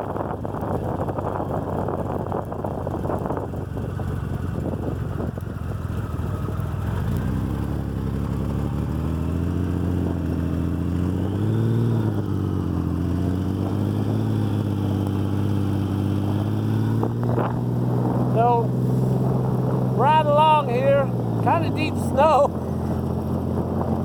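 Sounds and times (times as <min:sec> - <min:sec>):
wind rushing over microphone: 0:00.0 - 0:05.7, 0:06.4 - 0:24.0
motorcycle engine running: 0:00.0 - 0:24.0.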